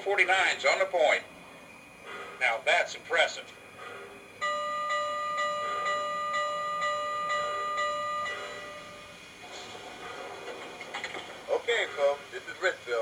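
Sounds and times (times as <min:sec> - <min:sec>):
steam locomotive chuffing: 0:00.0 - 0:13.0
steam whistle blast: 0:04.4 - 0:09.2.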